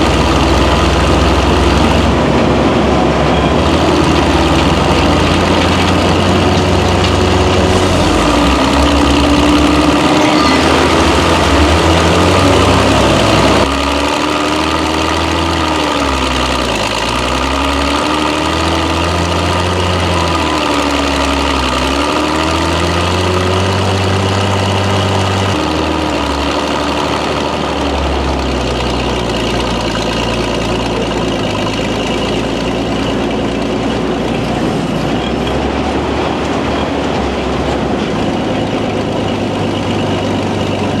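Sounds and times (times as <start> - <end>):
tracked vehicle engine running: 0.0 - 41.0
tracks clattering: 0.0 - 41.0.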